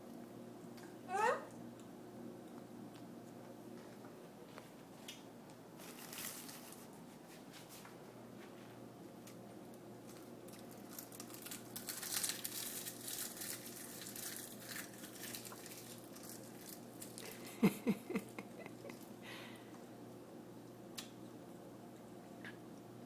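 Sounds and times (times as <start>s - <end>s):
steady low hum: 0.0s - 23.0s
plastic snack packet crinkling: 5.8s - 6.9s, 10.0s - 17.5s.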